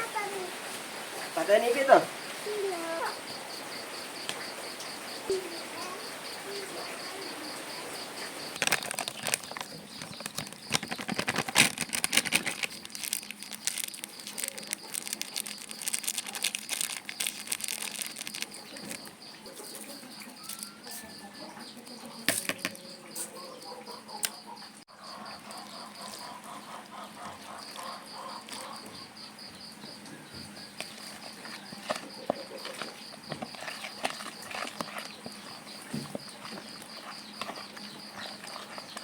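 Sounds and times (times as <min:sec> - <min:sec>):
high insect chirr: 0:01.3 - 0:39.0
crackling rustling handling noise: 0:08.6 - 0:20.8.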